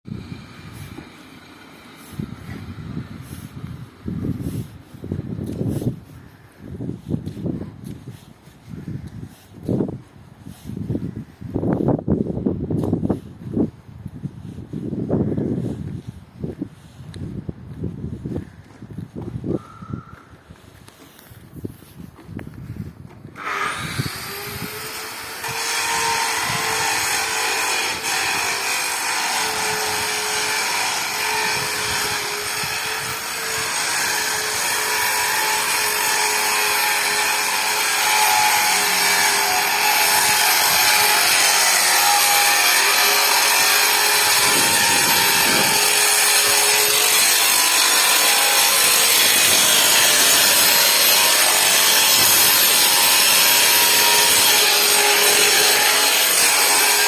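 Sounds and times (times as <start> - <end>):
power tool grinding: 23.4 - 57.0.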